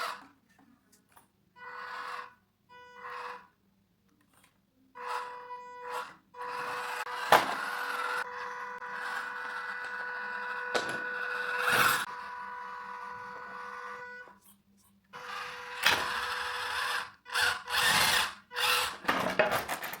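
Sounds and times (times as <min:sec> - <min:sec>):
electric motor and gears whining: 0:05.0 - 0:14.4, 0:15.2 - 0:19.8.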